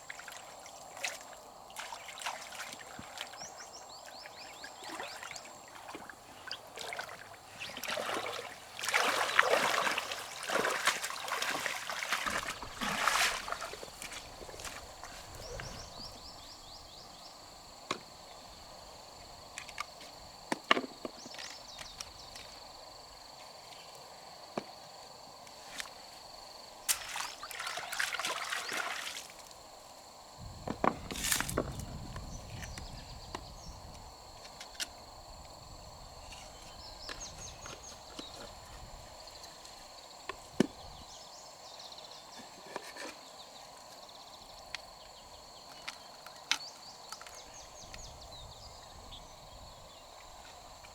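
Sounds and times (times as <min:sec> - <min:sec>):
splashing water: 0:04.8 - 0:15.8, 0:26.9 - 0:29.5.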